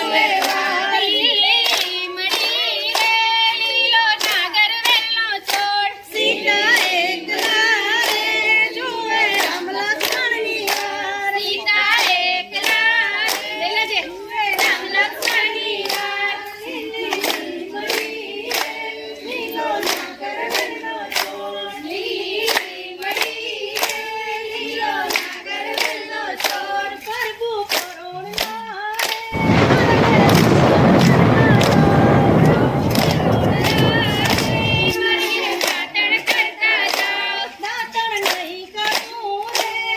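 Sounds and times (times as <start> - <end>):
voices singing together: 5.9 - 11.0, 29.4 - 35.0
rhythmic hand claps: 29.4 - 34.9.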